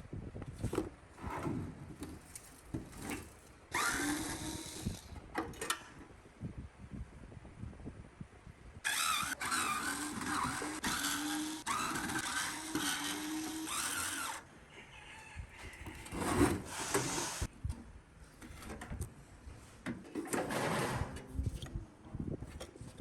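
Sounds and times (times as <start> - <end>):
handheld power tool whine: 3.7 - 5.2, 8.8 - 14.4, 16.0 - 17.5
scraping and rubbing: 15.8 - 17.5.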